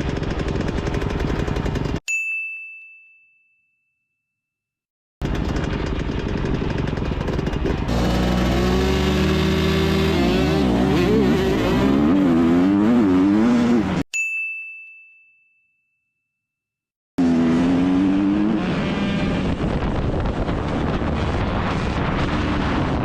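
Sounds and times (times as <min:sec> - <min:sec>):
bell-like ding: 0:02.1 - 0:04.3, 0:14.1 - 0:16.4
dirt bike engine revving: 0:05.2 - 0:14.0, 0:17.2 - 0:23.0.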